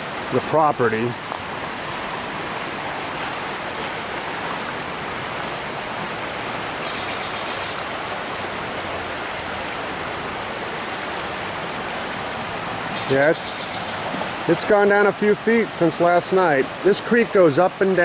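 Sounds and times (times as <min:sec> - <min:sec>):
creek water rushing: 0:00.0 - 0:18.0.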